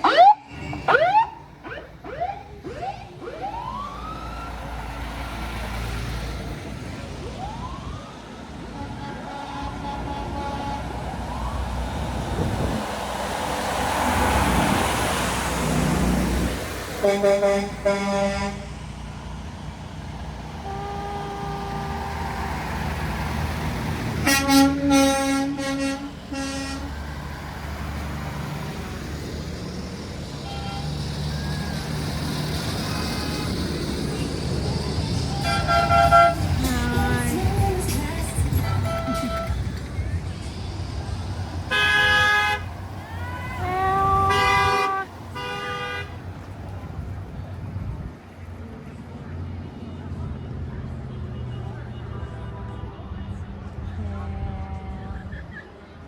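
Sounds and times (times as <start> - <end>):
trucks rumbling past: 0.0 - 56.0
truck horn blasts: 8.7 - 11.2, 17.0 - 18.8, 20.6 - 22.7, 24.1 - 27.2, 30.4 - 31.1, 35.3 - 39.8, 41.6 - 42.8, 43.5 - 46.2.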